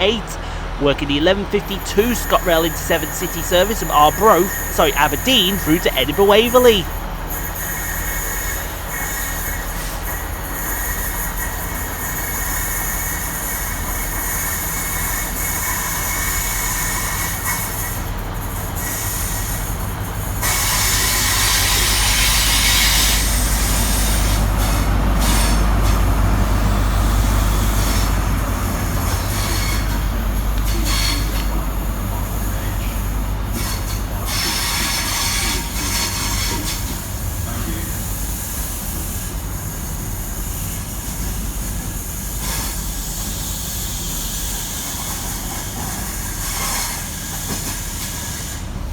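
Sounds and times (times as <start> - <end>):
diesel engine hum: 0.0 - 7.3, 23.0 - 30.6.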